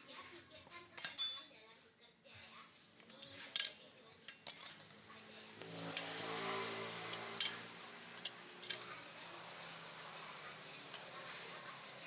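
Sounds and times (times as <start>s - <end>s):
metal tools clinking: 1.0s - 1.4s, 3.1s - 4.9s, 7.1s - 9.0s.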